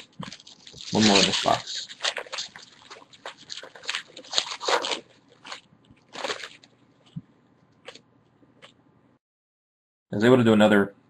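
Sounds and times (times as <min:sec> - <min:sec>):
card pack wrapper crinkling and tearing: 0:00.0 - 0:06.7.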